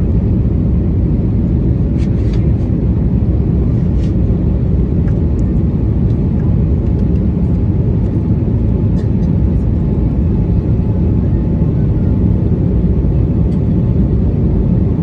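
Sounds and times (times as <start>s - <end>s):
airplane cabin engine rumble: 0.0s - 15.0s.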